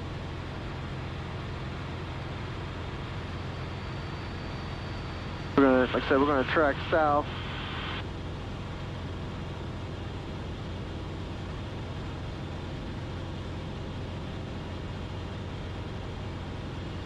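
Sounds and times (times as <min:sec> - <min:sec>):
airplane engine drone in cabin: 0:00.0 - 0:17.0.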